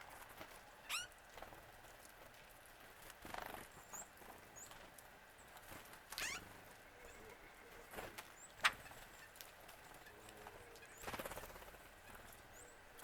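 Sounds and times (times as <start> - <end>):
faint bird calls: 6.2 - 13.0.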